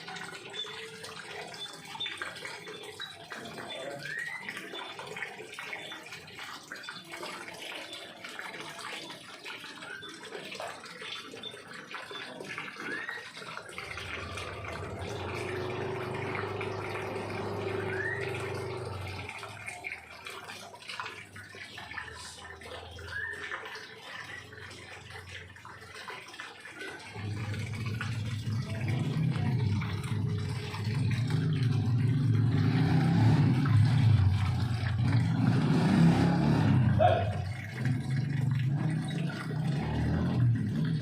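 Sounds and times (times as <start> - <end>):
birds chirping: 9.0 - 20.2, 21.2 - 25.2, 36.9 - 39.8.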